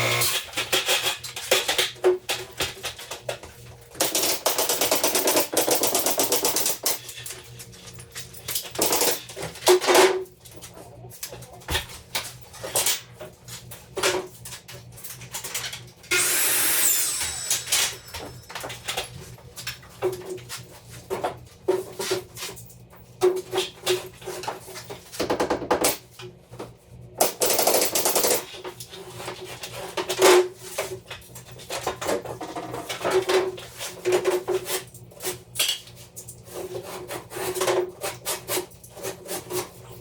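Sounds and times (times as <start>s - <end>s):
power tool running: 0.0s - 0.6s, 16.0s - 19.0s.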